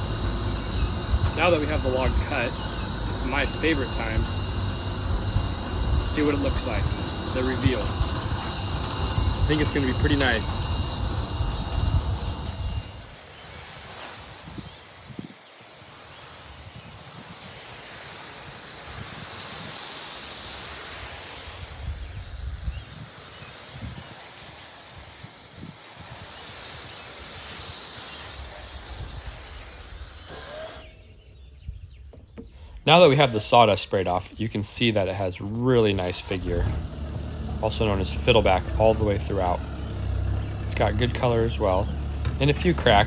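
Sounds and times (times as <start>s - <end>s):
spray hissing: 0.0s - 31.2s.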